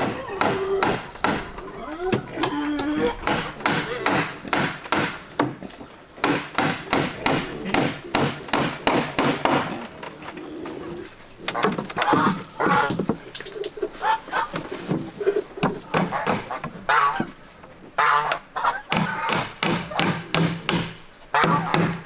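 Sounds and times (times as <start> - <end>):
hammer striking wood: 0.4 - 1.6, 3.2 - 5.6, 6.2 - 9.7, 15.6 - 16.4, 18.9 - 22.0.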